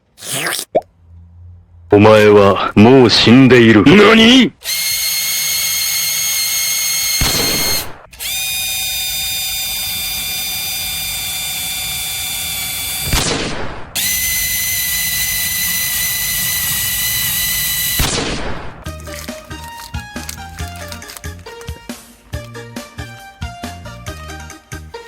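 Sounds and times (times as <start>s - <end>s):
drill bit grinding: 4.6s - 13.0s, 14.0s - 18.0s
electric drill whining: 4.6s - 13.1s, 14.0s - 18.1s
music: 18.8s - 25.0s.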